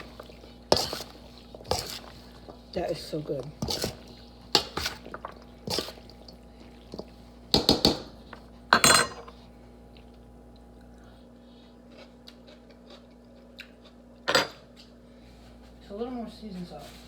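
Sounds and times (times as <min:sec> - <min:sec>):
utensils clinking against dishes: 0:08.8 - 0:09.4.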